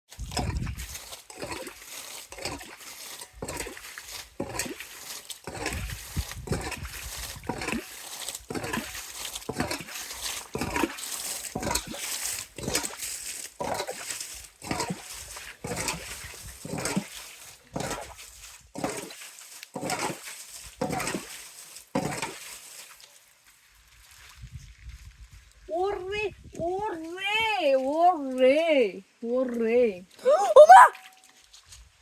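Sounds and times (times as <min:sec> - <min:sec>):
splashing in shallow water: 0:00.1 - 0:24.6.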